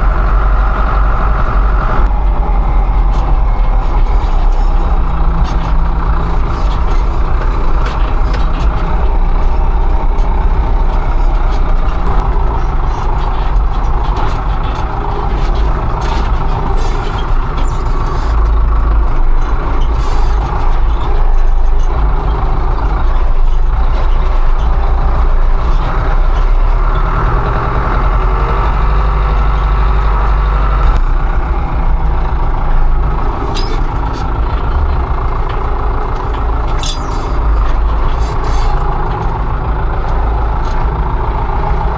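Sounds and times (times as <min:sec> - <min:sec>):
loud tractor engine running: 0:00.0 - 0:41.9.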